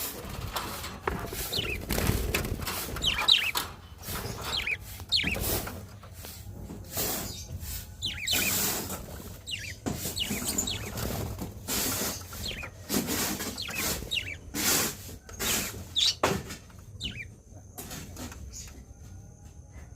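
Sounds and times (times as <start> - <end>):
parakeets chirping: 0.0 - 17.4
pecking clicks and rustles: 0.2 - 6.2.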